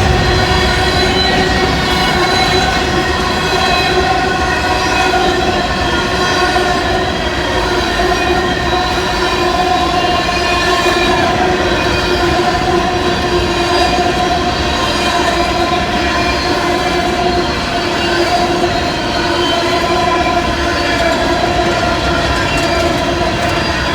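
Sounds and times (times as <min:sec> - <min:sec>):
freight train rumbling past: 0:00.0 - 0:23.9
ringing wheel squeal: 0:00.0 - 0:23.9.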